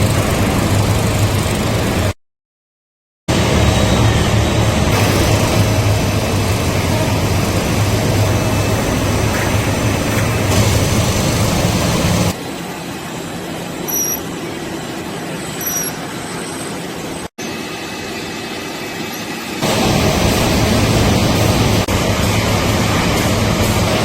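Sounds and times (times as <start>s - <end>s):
factory machinery humming: 0.0s - 2.2s, 3.3s - 24.0s
high squeaks: 13.9s - 14.4s, 15.4s - 16.8s.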